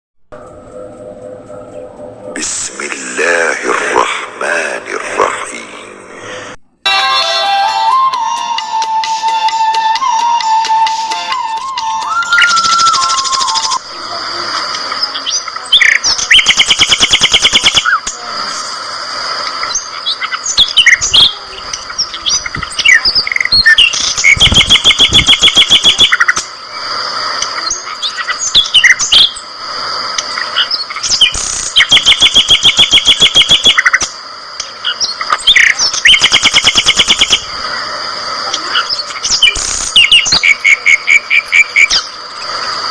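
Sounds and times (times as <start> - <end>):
loud rapid bird trill: 12.2 - 13.8, 15.1 - 18.0, 19.7 - 26.4, 27.6 - 29.4, 30.4 - 34.1, 34.8 - 37.6, 38.7 - 42.2
budgerigars chirping: 38.8 - 42.1.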